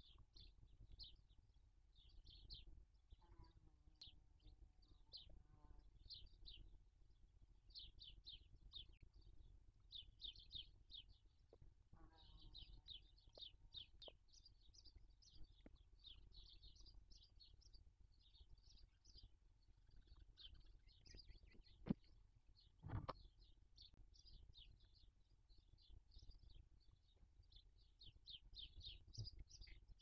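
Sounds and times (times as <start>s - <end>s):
faint rapid bird chirping: 7.7s - 30.0s.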